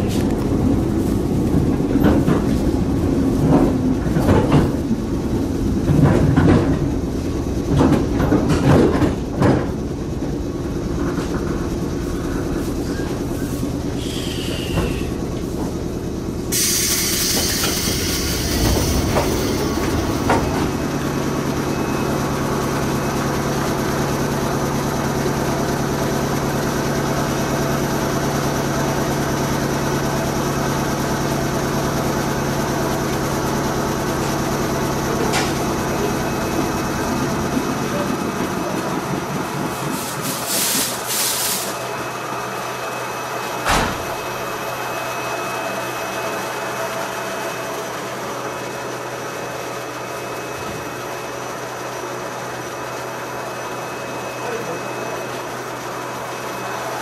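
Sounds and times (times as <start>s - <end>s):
wheel clatter over rail joints: 0.0s - 13.9s, 17.4s - 41.2s
train doors opening rush: 0.0s - 48.7s
stopped train humming: 0.0s - 57.0s
brake squeal: 12.2s - 15.2s, 16.5s - 20.4s.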